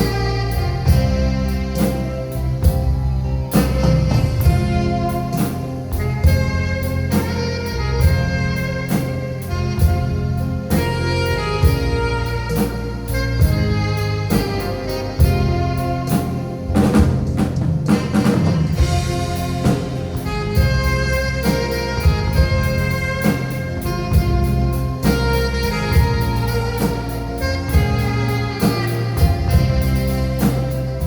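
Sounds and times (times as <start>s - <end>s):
alto saxophone melody: 0.0s - 31.0s
drum kit steady beat: 0.0s - 31.0s
keyboard: 0.0s - 31.0s.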